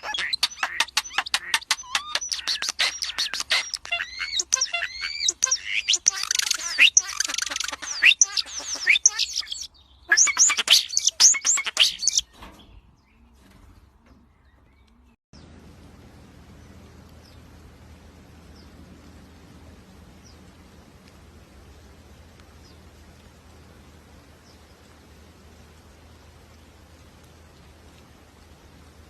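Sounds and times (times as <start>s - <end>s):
birds chirping: 0.0s - 29.0s
faint low hum: 13.2s - 29.0s.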